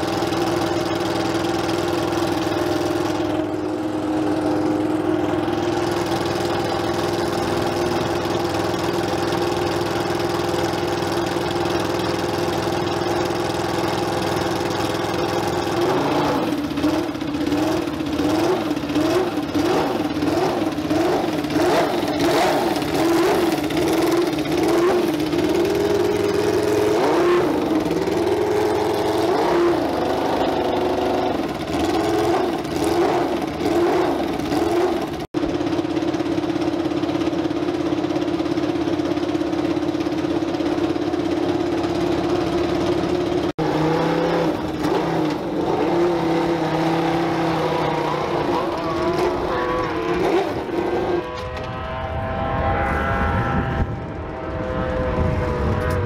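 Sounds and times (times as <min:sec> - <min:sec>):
car engine idling and revving: 0:00.0 - 0:56.0.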